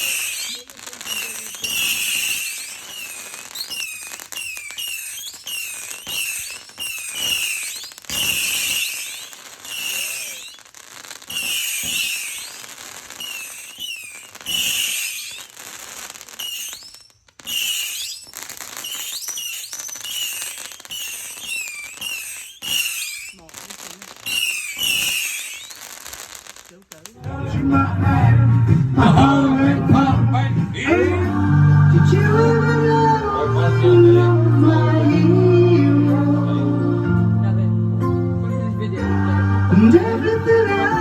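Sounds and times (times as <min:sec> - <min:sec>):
whistling fireworks: 0:00.0 - 0:27.3, 0:30.8 - 0:36.3, 0:39.8 - 0:41.0
firework cracks: 0:00.0 - 0:27.5.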